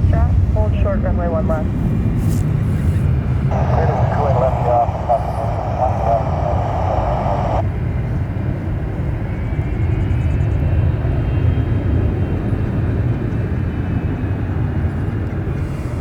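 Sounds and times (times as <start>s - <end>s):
jet engines rumbling: 0.0s - 9.1s
faint turbine whine: 0.0s - 10.8s.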